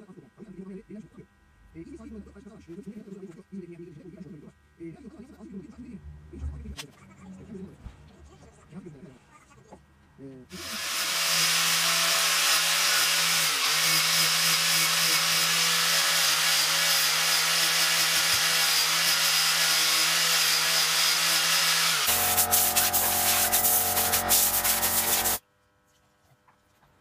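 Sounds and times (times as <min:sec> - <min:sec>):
power sander on wood: 0:10.5 - 0:25.4.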